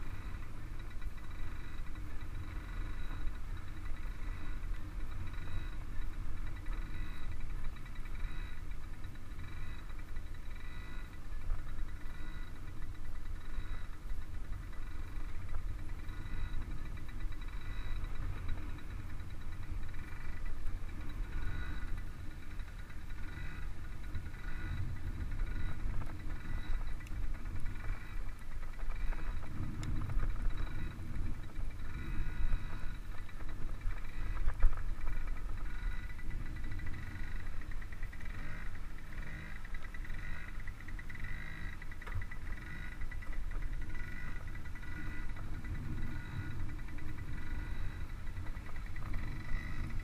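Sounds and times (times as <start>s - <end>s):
dirt bike engine running: 0.0s - 50.0s.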